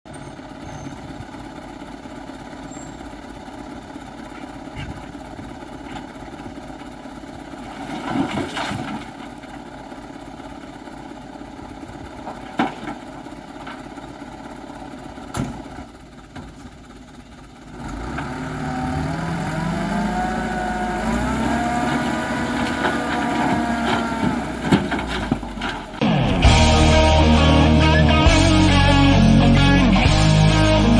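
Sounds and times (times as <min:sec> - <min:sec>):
dump truck engine revving: 0:17.6 - 0:30.9.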